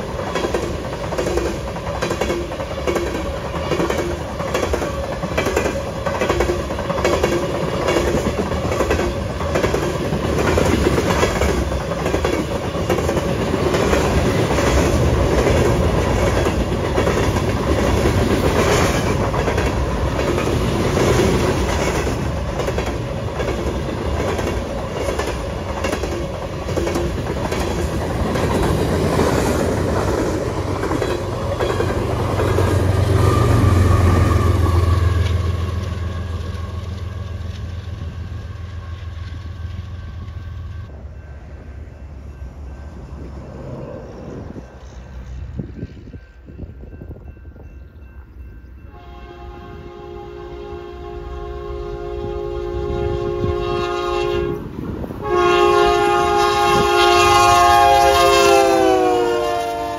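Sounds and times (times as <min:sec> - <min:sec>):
train wheels clattering over rails: 0:00.0 - 0:38.1.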